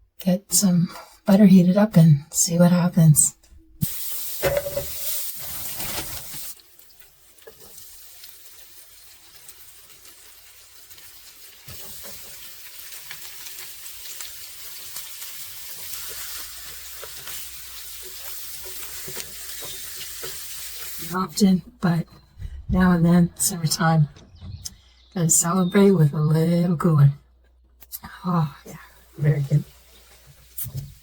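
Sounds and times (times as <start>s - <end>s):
butter sizzling in a pan: 3.8s - 21.2s, 28.9s - 31.0s.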